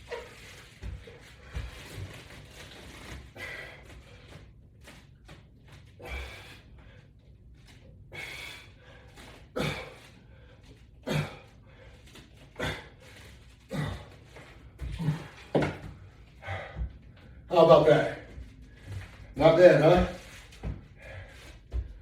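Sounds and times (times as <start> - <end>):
man grunting: 9.6 - 10.0, 11.0 - 11.5, 13.7 - 14.2, 14.8 - 15.7
man exhaling forcefully: 9.6 - 10.1, 11.0 - 11.5.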